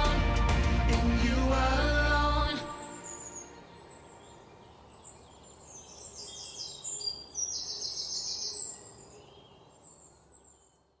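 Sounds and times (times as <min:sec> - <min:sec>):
birds chirping in trills: 0:02.7 - 0:10.9.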